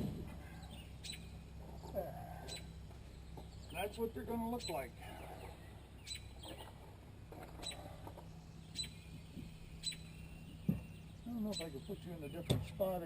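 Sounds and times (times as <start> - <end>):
bird chirping: 0.0 - 13.0
steady low hum: 0.0 - 13.0
dull knock: 10.6 - 10.9.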